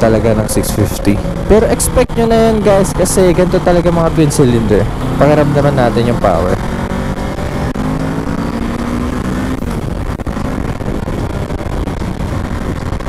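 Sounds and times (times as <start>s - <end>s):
motorcycle engine accelerating: 0.0s - 13.0s
wind rush on microphone: 5.9s - 13.0s.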